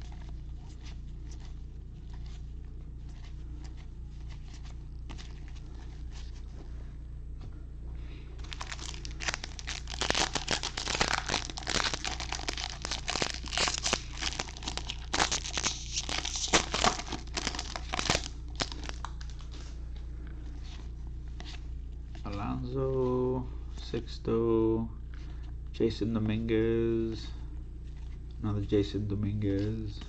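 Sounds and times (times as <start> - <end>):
plastic wrapper tearing and crinkling: 8.4 - 19.5.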